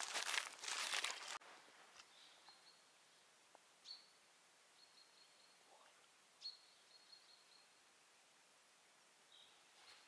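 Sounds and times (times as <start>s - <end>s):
faint high bird calls: 2.0s - 7.9s.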